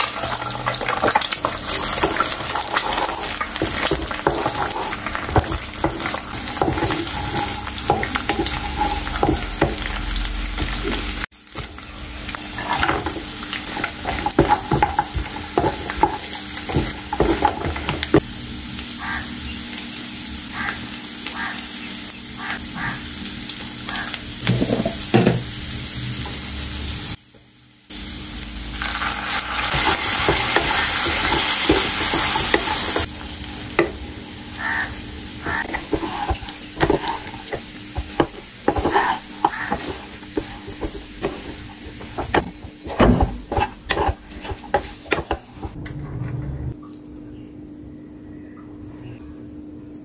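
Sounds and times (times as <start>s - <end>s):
spatula scraping and clanking pan: 0.0s - 11.3s, 12.4s - 18.2s, 29.7s - 33.1s, 35.4s - 45.8s
food sizzling in a pan: 0.0s - 45.8s.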